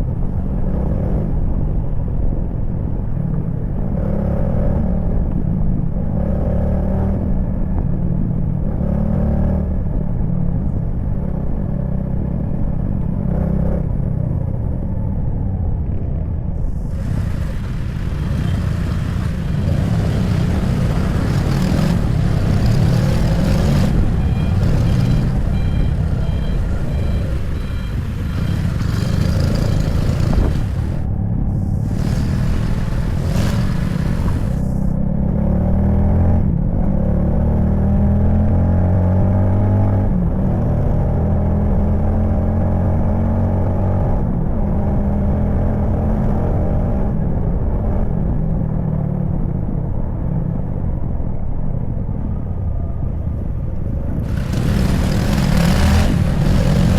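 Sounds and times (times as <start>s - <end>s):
traffic engine rumble: 0.0s - 37.1s, 46.1s - 56.9s
engine pitch rising and falling: 16.9s - 34.9s, 54.2s - 56.9s
short high beeps: 23.7s - 29.8s.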